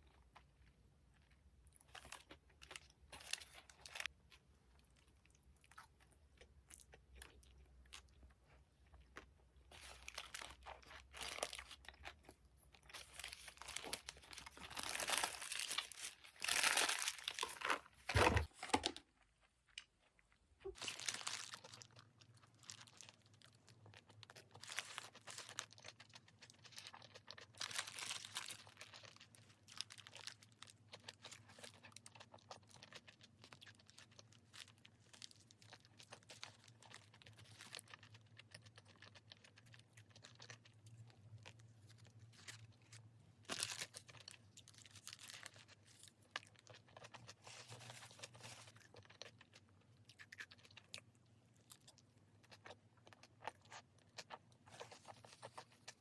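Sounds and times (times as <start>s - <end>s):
crunching and chewing: 0.0s - 56.0s
packaging crinkling and tearing: 9.7s - 19.1s, 20.6s - 40.6s, 43.5s - 49.6s.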